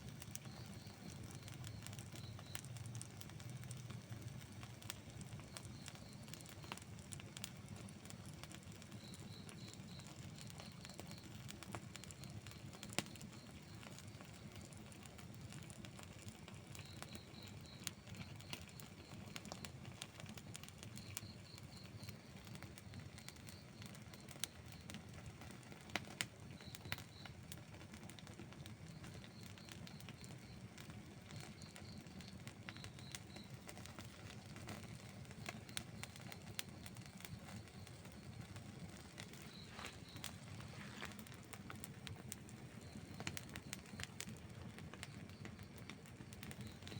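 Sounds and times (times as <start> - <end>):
campfire crackling and popping: 0.0 - 46.9
faint high chirps: 0.1 - 14.7, 31.3 - 46.9.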